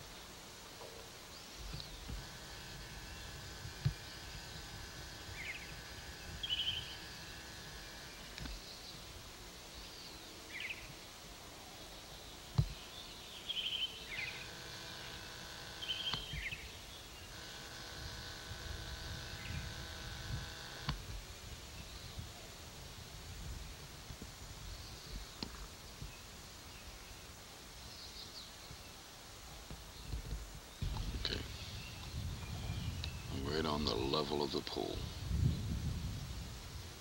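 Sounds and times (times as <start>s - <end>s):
outdoor background noise: 0.0s - 37.0s
steady hum: 0.0s - 37.0s
sharp thumps: 1.6s - 8.6s, 12.6s - 12.8s.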